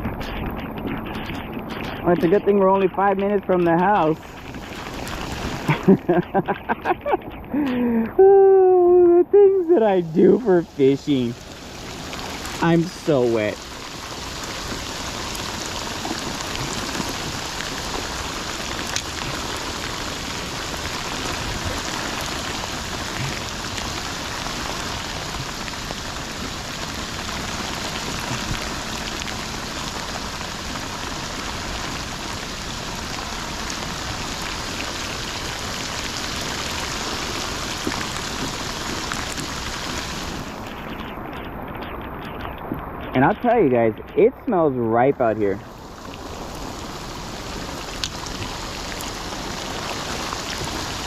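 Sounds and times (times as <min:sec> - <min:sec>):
rain drop taps: 0:00.0 - 0:08.2, 0:36.3 - 0:44.2, 0:47.6 - 0:50.8
heavy rain pouring: 0:00.0 - 0:51.0.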